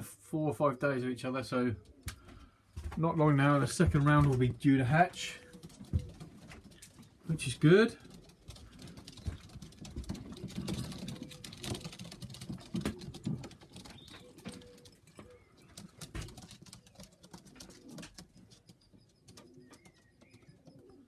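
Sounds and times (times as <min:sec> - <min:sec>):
pigeons cooing: 0:04.7 - 0:21.0.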